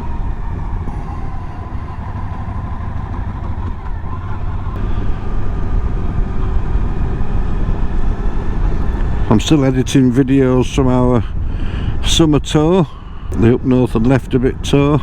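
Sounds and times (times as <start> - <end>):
motorcycle engine running: 0.0 - 9.3
road noise: 0.0 - 13.3.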